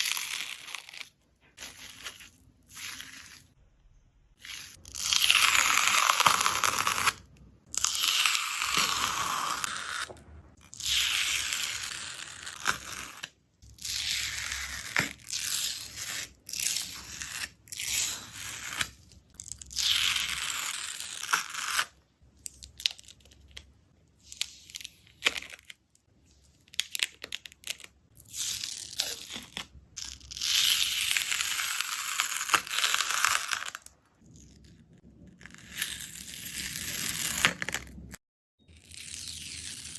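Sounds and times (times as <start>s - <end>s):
slime tearing with crackles: 26.6s - 38.2s.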